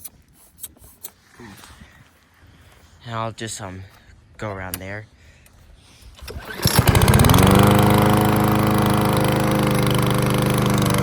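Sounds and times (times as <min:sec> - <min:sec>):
lawnmower engine starting: 0:06.1 - 0:11.0.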